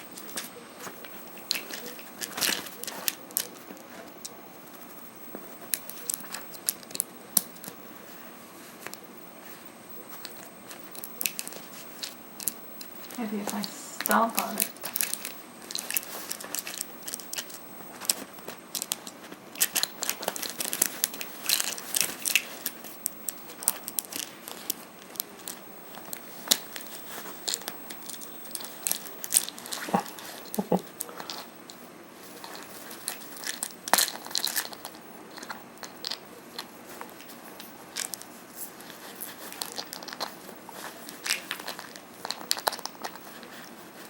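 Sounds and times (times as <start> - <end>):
parrot chewing plastic bottle: 10.2 - 44.0.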